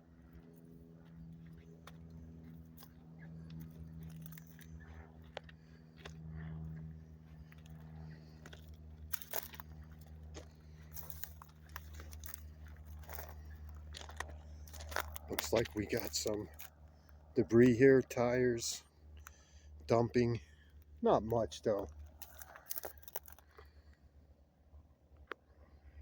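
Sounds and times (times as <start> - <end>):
steady low hum: 0.0 - 26.0
footsteps crunching on rock ballast: 0.4 - 18.5, 19.1 - 23.9.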